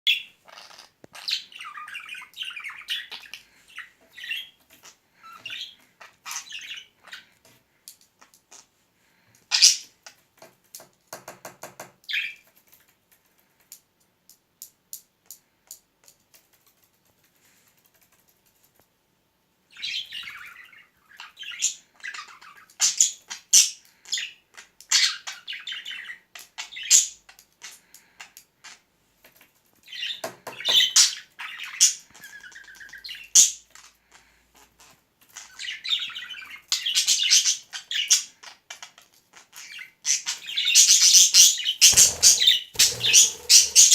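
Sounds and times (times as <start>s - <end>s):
budgerigar chirping and chattering: 29.9s - 33.5s, 39.6s - 43.9s
budgerigar rapid clicking: 41.8s - 43.9s.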